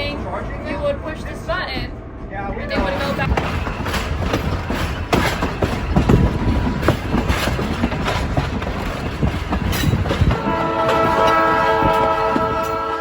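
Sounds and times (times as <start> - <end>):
train wheels clattering on track: 2.7 - 13.0
train horn chord: 10.3 - 13.0.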